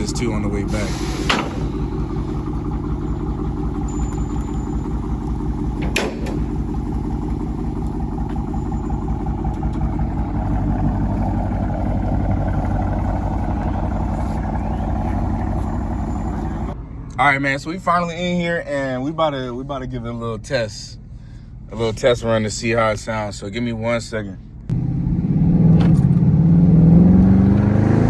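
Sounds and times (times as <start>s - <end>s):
deep car exhaust note: 0.0s - 16.8s.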